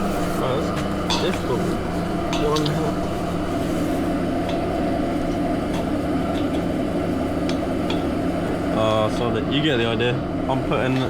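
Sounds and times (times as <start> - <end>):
air compressor humming: 0.0 - 11.0.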